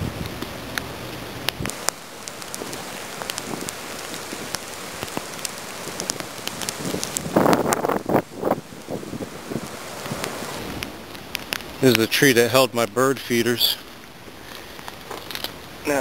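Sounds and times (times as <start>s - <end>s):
wind rush: 0.0s - 11.9s
raindrops ticking close by: 0.0s - 16.0s
steady rain: 0.0s - 16.0s.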